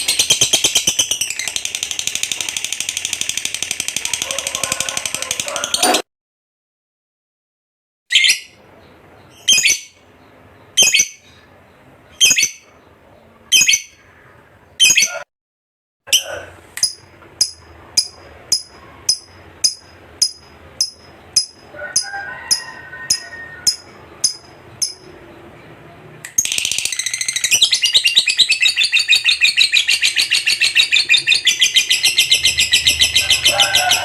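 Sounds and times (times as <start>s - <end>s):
lovebird chirping: 0.0s - 3.5s, 8.1s - 15.2s, 23.3s - 34.0s.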